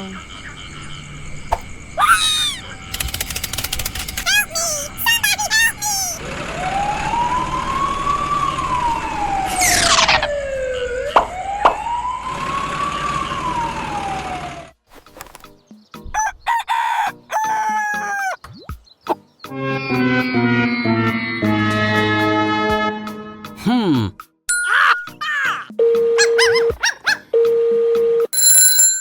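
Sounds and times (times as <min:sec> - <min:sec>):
high-pitched squawks: 0:02.0 - 0:02.8, 0:24.6 - 0:27.2
sharp clicks: 0:02.9 - 0:04.6
wailing siren: 0:06.2 - 0:14.7.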